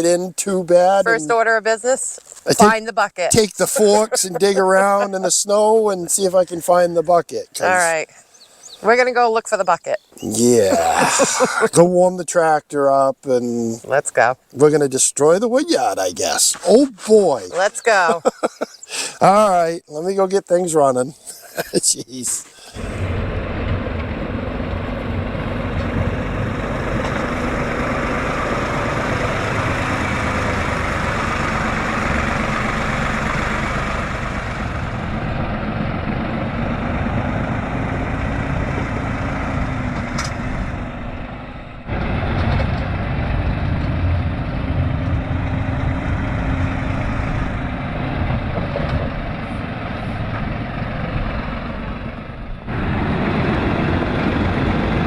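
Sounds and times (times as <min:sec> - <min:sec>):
tractor engine running: 0:00.0 - 0:08.0, 0:22.7 - 0:55.0.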